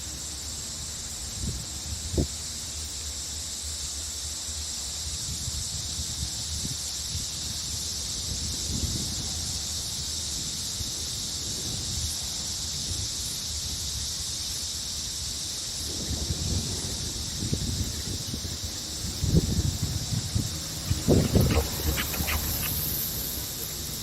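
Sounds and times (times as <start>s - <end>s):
insect chorus shrilling: 0.0s - 24.0s
low rumbling: 16.5s - 24.0s.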